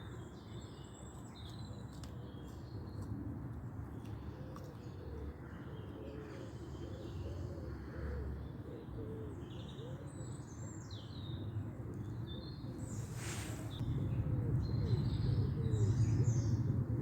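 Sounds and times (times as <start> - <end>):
low curving bird calls: 12.2 - 17.0
steady low rumble: 12.9 - 17.0
short hiss: 13.0 - 13.8.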